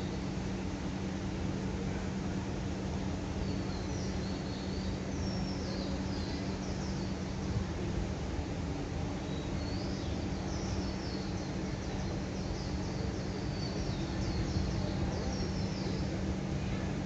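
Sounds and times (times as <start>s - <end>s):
steady low hum: 0.0s - 17.0s
small birds chirping: 9.3s - 16.2s.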